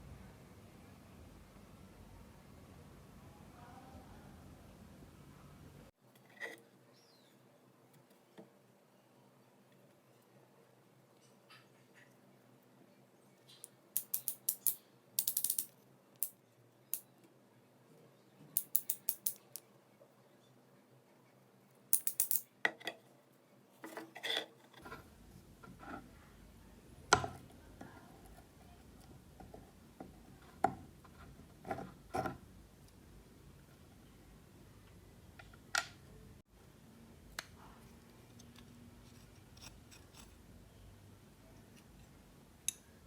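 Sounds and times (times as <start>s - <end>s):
metal parts and tools clinking: 13.5s - 16.3s, 18.6s - 19.6s, 21.9s - 22.5s.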